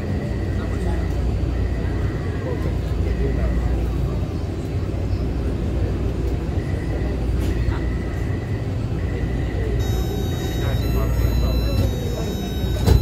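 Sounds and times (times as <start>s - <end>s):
metro train rumble: 0.0s - 13.0s
thin high whine: 9.8s - 13.0s.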